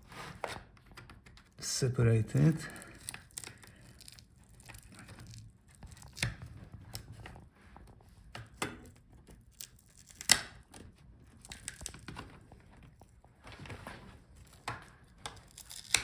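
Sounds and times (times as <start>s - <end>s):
glue cracking and tearing: 2.4s - 7.3s, 8.5s - 13.0s, 14.4s - 16.0s.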